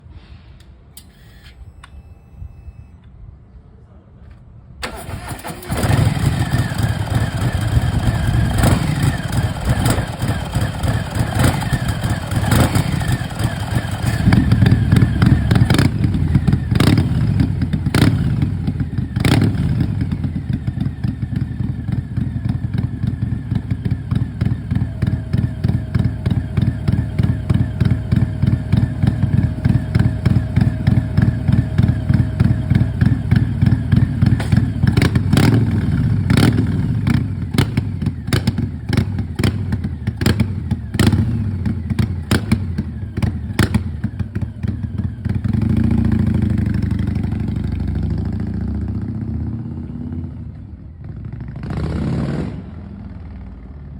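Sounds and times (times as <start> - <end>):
motorcycle engine idling: 4.8 - 49.1
exhaust cracks: 23.8 - 38.9.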